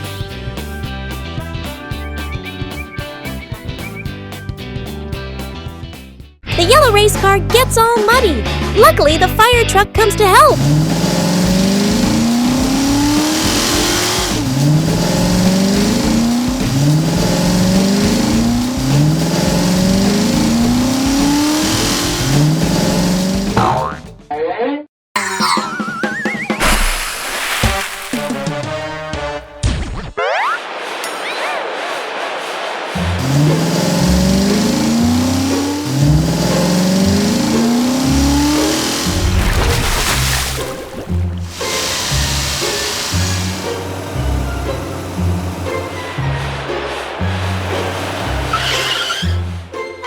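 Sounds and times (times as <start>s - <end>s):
cartoon car engine revving: 6.6s - 24.0s, 26.6s - 29.4s, 32.8s - 49.8s.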